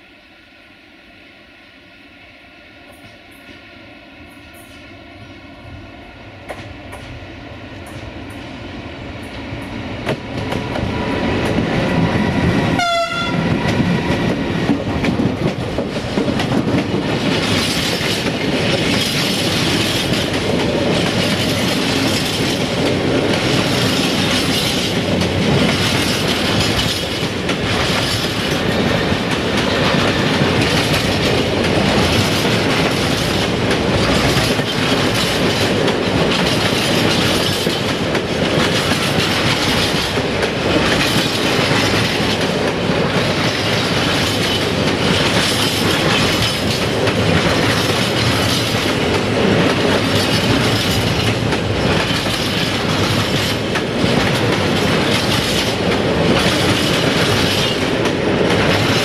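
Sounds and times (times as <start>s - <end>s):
train rumble and wheel clatter: 2.2s - 59.0s
train horn tone: 12.7s - 13.6s.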